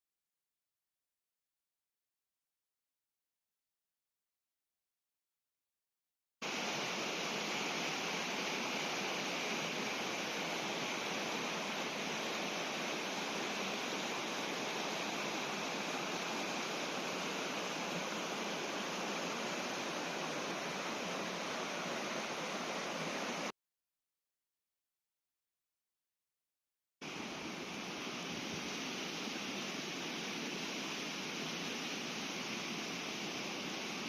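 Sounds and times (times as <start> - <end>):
river water rushing: 6.4 - 23.5, 27.0 - 34.0.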